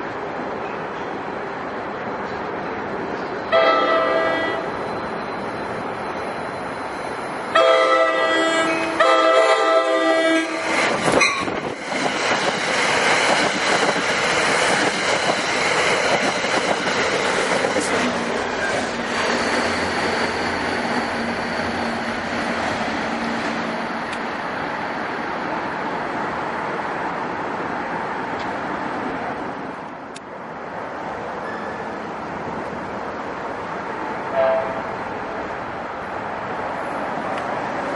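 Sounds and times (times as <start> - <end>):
wheels rumbling on rail: 0.0 - 37.9
train horn chord: 3.5 - 4.7, 7.6 - 10.8, 34.3 - 34.8.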